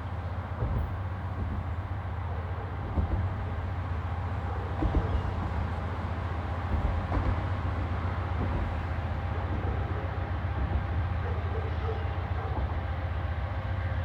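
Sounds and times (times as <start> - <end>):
train cars knocking: 0.0 - 13.0
freight train rumbling: 0.0 - 14.0.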